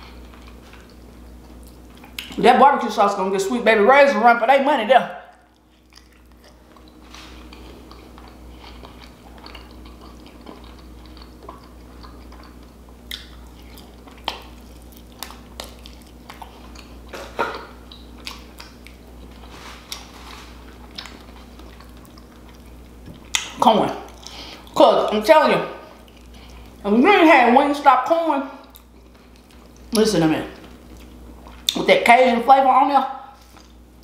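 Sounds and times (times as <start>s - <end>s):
wet chewing and mouth sounds: 0.0s - 2.4s, 5.2s - 26.9s, 28.5s - 31.9s, 33.3s - 33.9s
sharp mouth clicks and smacks: 1.6s - 2.4s, 5.4s - 7.0s, 8.0s - 16.9s, 17.5s - 19.0s.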